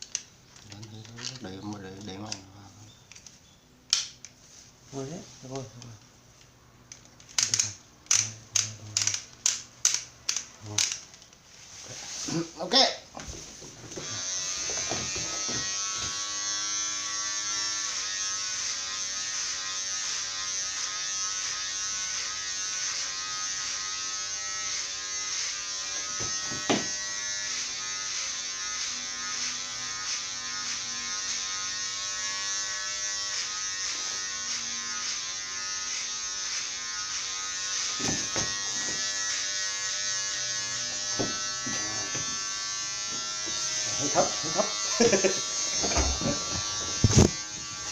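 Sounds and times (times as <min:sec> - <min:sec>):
electric hair clipper buzzing: 0:07.3 - 0:11.0, 0:13.9 - 0:47.9
knocks: 0:26.2 - 0:27.0.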